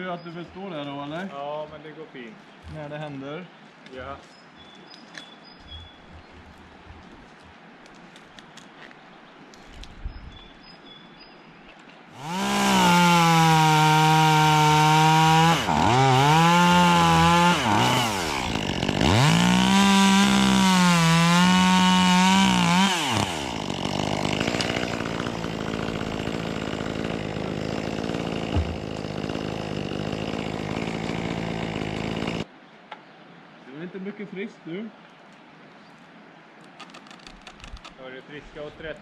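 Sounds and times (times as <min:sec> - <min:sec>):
chainsaw revving and idling: 0:12.1 - 0:32.5.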